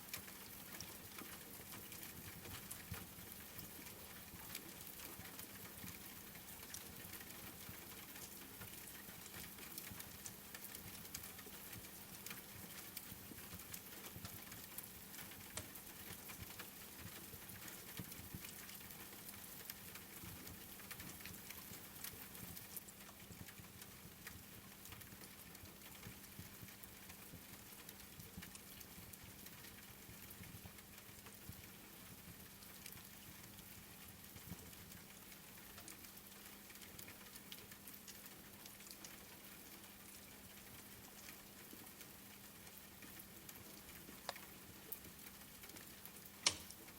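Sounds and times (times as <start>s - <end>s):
crackling wood fire: 0.0s - 46.9s
steady rain: 0.0s - 46.9s.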